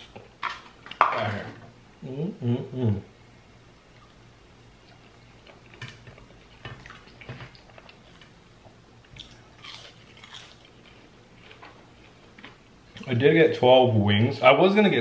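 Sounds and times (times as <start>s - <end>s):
person chewing food: 3.9s - 13.1s.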